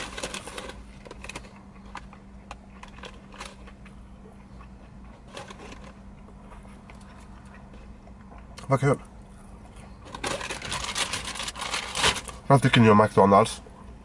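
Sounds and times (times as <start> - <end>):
chewing crispy food: 0.0 - 12.4
faint low hum: 0.0 - 14.0.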